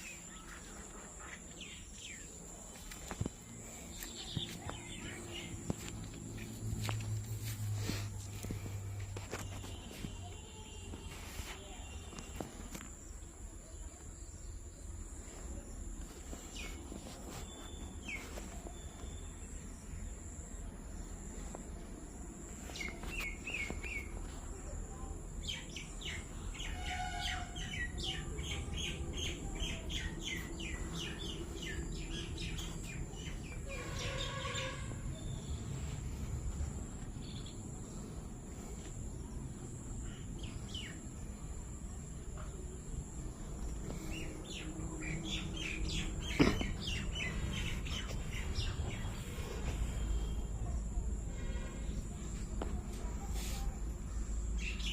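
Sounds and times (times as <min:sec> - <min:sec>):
birds chirping and calling: 0:43.9 - 0:50.0.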